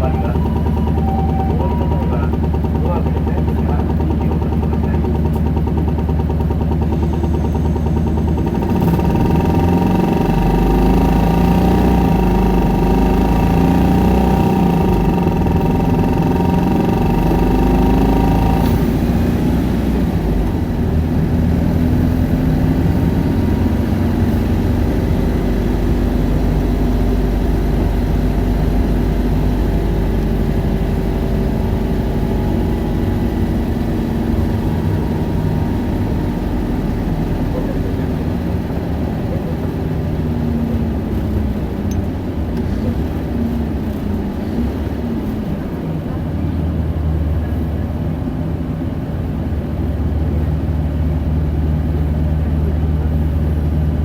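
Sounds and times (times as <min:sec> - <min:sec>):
bus diesel engine pulling hard: 0:00.0 - 0:54.0
engine whine: 0:00.0 - 0:54.0.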